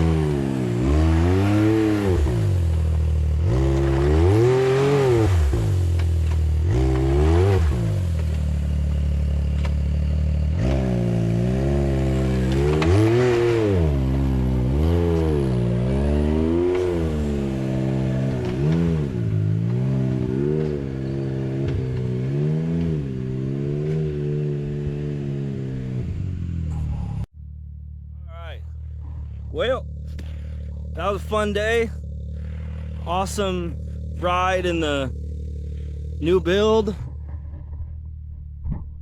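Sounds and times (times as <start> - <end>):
engine revving: 0.0 - 26.7.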